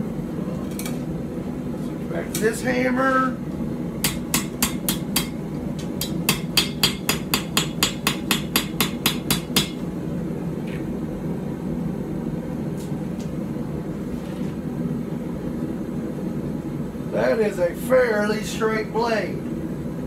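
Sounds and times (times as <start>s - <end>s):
hammer ringing on anvil: 6.0s - 9.8s.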